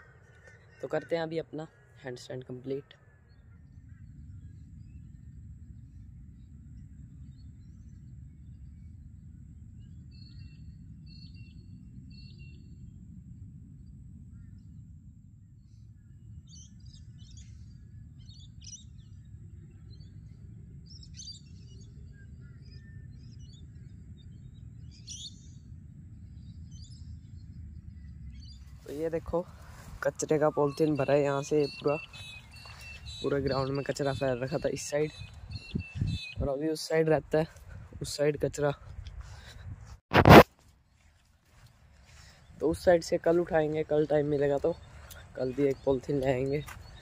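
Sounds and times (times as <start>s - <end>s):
birds chirping and calling: 0.0s - 4.5s, 28.4s - 36.6s, 42.1s - 47.0s
steady low rumble: 0.0s - 40.4s.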